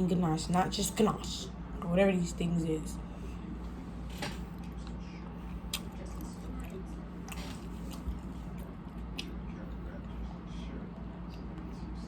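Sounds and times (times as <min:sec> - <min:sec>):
steady low hum: 0:00.0 - 0:12.0
person chewing food: 0:04.4 - 0:09.9.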